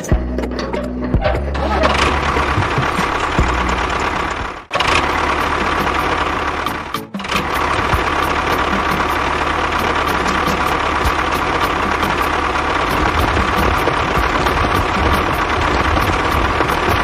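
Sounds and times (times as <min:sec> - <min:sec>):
tractor motor running: 0:00.0 - 0:17.0.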